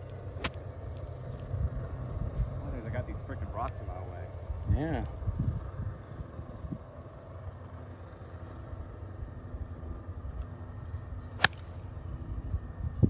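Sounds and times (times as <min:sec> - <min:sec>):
golf club striking ball: 0:00.0 - 0:00.8, 0:11.3 - 0:11.9
low rumble: 0:00.0 - 0:13.0.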